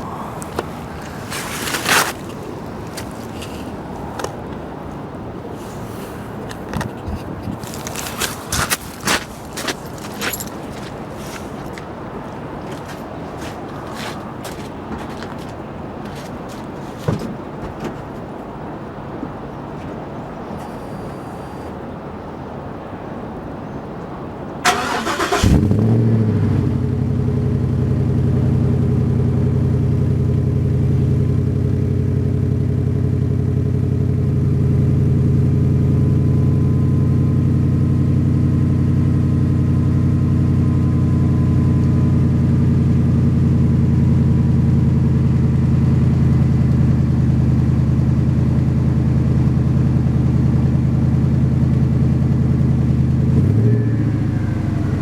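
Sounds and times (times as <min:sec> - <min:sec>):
truck engine starting and idling: 0:24.6 - 0:55.0.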